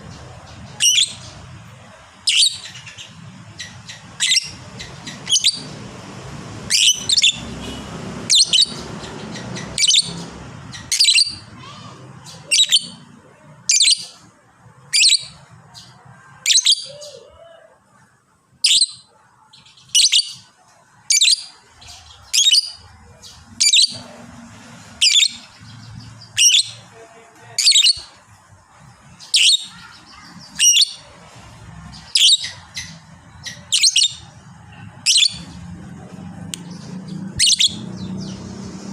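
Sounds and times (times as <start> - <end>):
lovebird high-pitched calls: 0.6 - 1.4, 2.2 - 5.8, 6.6 - 14.2, 14.9 - 17.2, 18.6 - 20.5, 21.1 - 24.1, 24.9 - 26.8, 27.6 - 28.1, 29.1 - 31.1, 31.9 - 35.6, 37.1 - 38.4.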